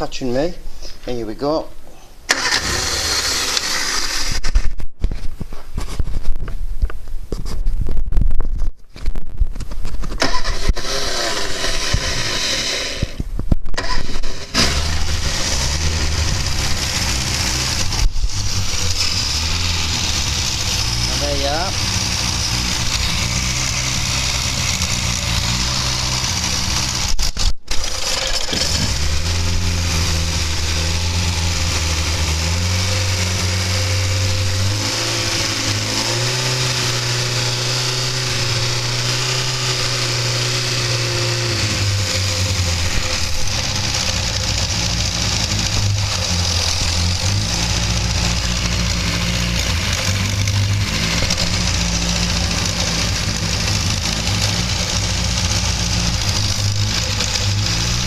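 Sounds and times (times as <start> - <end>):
car engine idling and revving: 2.3 - 4.6, 10.1 - 13.2, 13.8 - 58.0
engine knock: 42.0 - 58.0.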